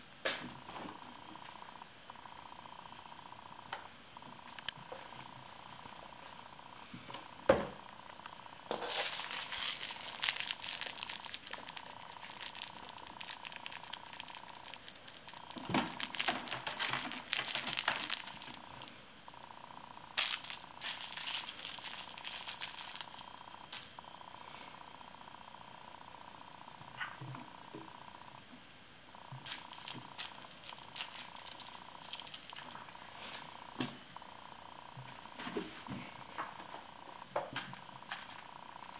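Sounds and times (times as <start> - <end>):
faint steady whine: 0.0 - 38.9
crinkly rustling and scratching: 8.7 - 19.5, 20.1 - 24.0, 29.3 - 33.6, 37.6 - 38.9.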